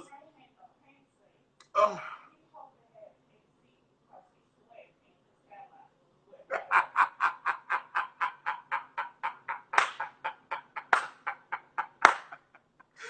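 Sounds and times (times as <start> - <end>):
man laughing hard: 6.5 - 13.0.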